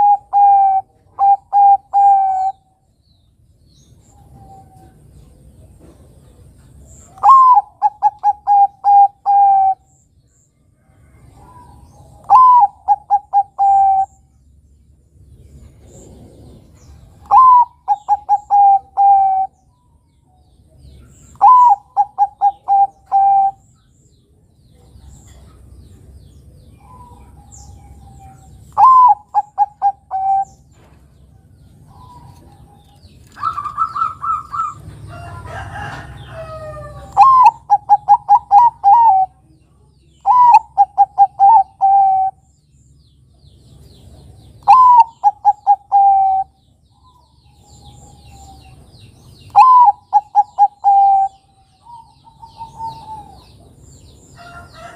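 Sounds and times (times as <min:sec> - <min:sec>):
dove cooing: 0:00.0 - 0:02.6, 0:07.1 - 0:09.9, 0:11.3 - 0:14.2, 0:16.1 - 0:19.6, 0:21.1 - 0:23.6, 0:26.8 - 0:30.9, 0:31.8 - 0:39.4, 0:40.2 - 0:42.4, 0:44.6 - 0:48.8, 0:49.5 - 0:53.7.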